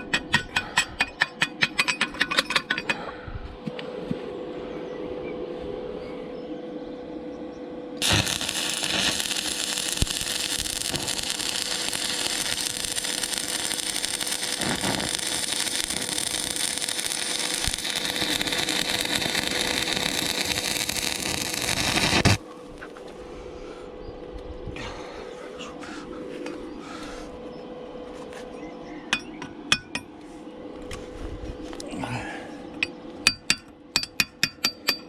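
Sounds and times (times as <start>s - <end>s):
arc welding sizzle: 8.0s - 23.0s.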